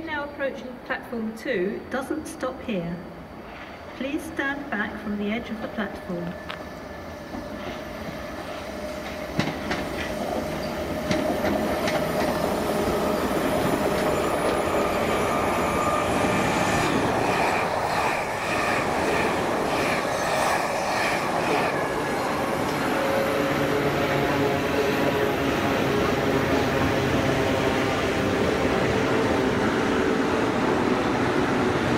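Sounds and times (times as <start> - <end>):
train wheels clattering: 7.3 - 23.2.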